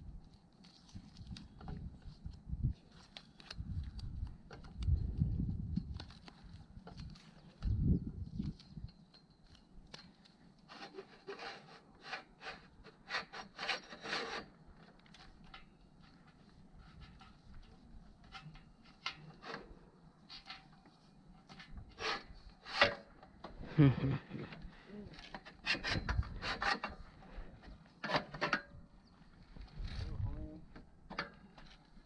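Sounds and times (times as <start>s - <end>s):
equipment rubbing and scraping: 10.7s - 14.6s, 21.4s - 23.2s, 25.1s - 28.6s.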